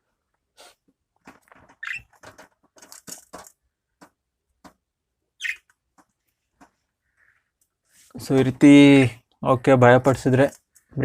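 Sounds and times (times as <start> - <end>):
birds clicking and rattling in cage: 1.2 - 4.1
budgerigar chirp: 1.8 - 2.1, 5.4 - 5.7.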